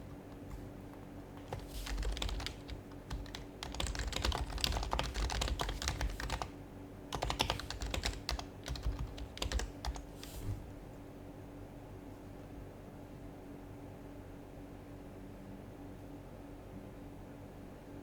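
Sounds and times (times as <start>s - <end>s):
soft keyboard typing: 0.0s - 10.5s.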